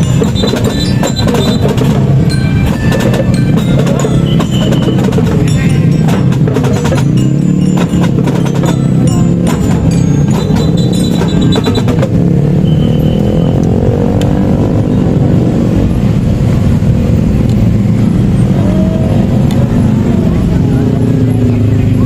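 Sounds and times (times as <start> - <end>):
rapid drum strokes: 0.0 - 12.5
marching band playing: 0.0 - 14.1.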